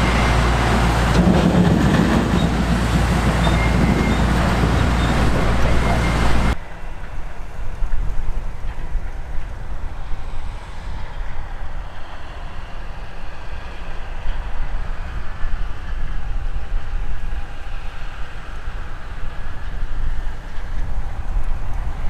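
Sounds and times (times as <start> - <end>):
diesel farm machinery rumbling: 0.0 - 6.6.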